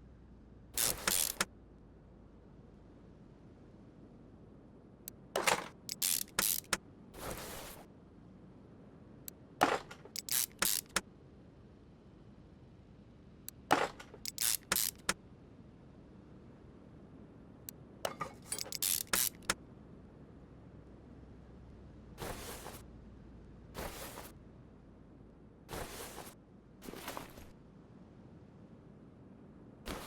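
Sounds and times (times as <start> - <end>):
metal parts clinking: 0.8 - 1.4, 5.4 - 6.8, 9.9 - 11.0, 13.7 - 15.2, 18.1 - 19.6.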